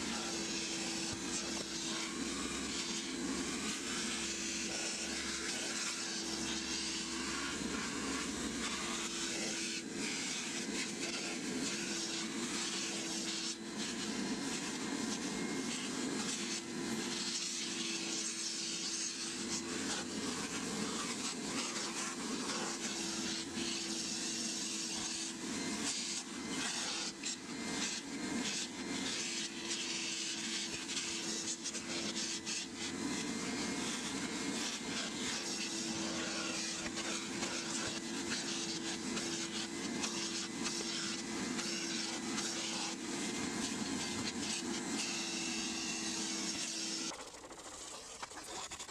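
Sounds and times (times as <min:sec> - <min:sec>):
carpet extractor suction hissing: 0:00.0 - 0:48.8
water slurping up hose: 0:47.1 - 0:48.9.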